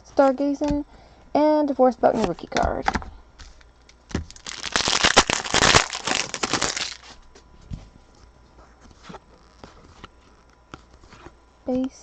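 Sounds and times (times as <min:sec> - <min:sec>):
foil wrapper tearing and crinkling: 0:03.5 - 0:07.2.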